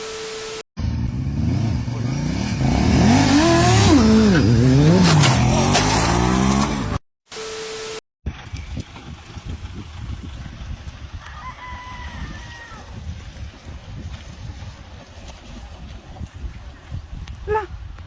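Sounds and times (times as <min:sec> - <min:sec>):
vehicle engine revving: 0:00.8 - 0:07.0.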